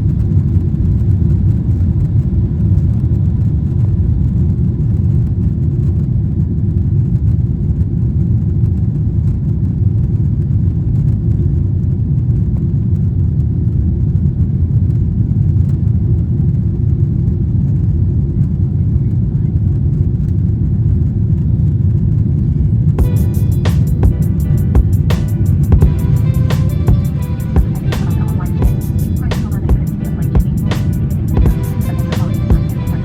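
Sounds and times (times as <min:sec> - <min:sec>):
airplane cabin engine rumble: 0:10.1 - 0:33.0.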